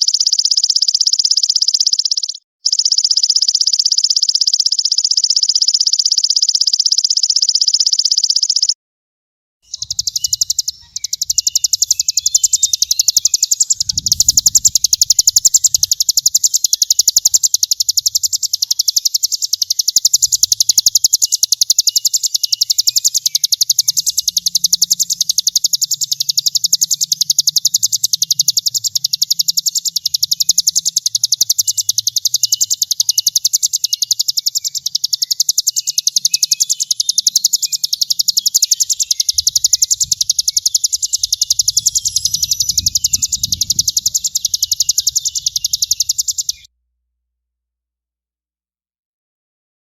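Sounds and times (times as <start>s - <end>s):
bird buzzing trill: 0.0s - 8.8s, 9.7s - 46.7s.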